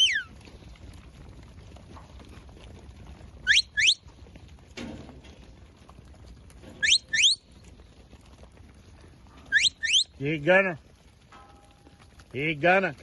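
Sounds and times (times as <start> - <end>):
rising whistle notes: 3.4 - 4.0, 6.8 - 7.4, 9.5 - 10.1.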